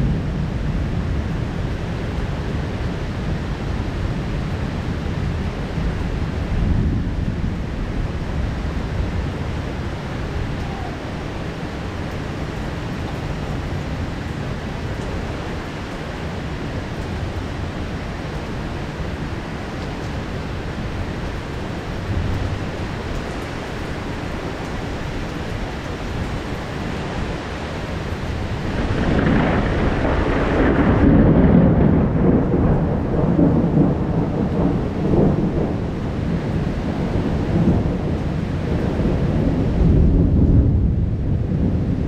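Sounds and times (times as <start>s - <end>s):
heavy rain falling: 0.0s - 42.0s
rolling thunder: 0.0s - 42.0s.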